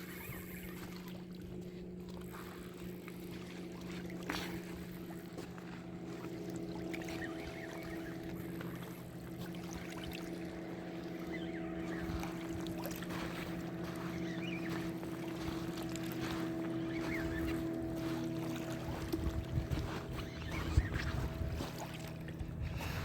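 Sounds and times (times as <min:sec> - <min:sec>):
boat motor humming: 0:00.0 - 0:23.0
faint chirps and ticks: 0:04.8 - 0:21.8.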